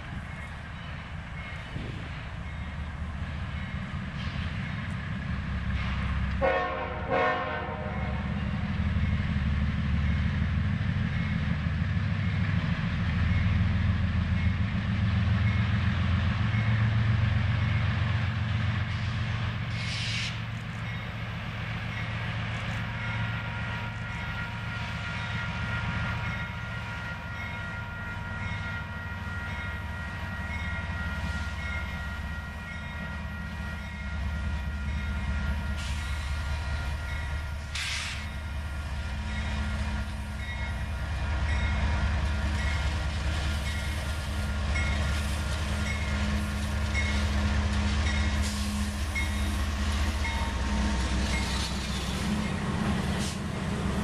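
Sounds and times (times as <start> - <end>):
diesel locomotive engine rumble: 0.0 - 54.0
locomotive horn: 6.3 - 8.4.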